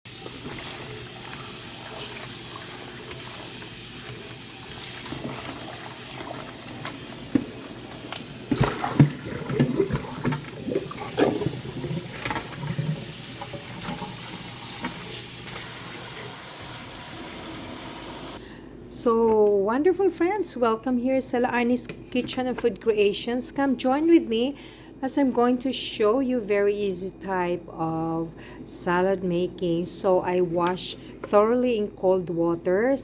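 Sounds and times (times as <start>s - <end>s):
water running from a tap: 0.1s - 18.4s.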